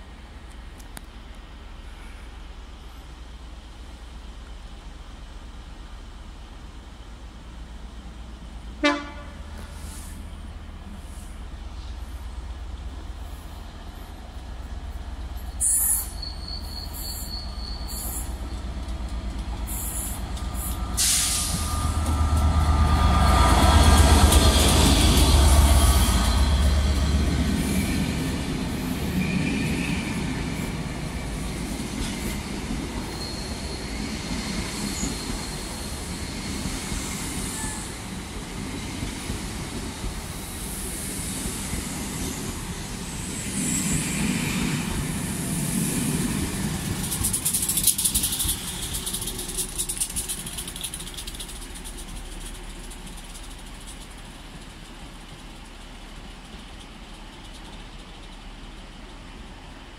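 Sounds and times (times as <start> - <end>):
diesel locomotive engine: 0.0 - 59.9
wheel and rail rumble: 0.0 - 59.9
thin wheel squeal: 15.6 - 18.4, 33.1 - 33.9
wheels clicking over rail joints: 46.1 - 59.7.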